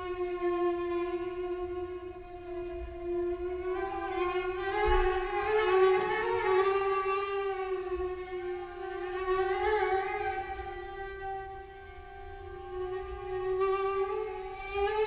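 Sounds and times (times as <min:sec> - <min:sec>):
violin bowed note with vibrato: 0:03.6 - 0:15.0.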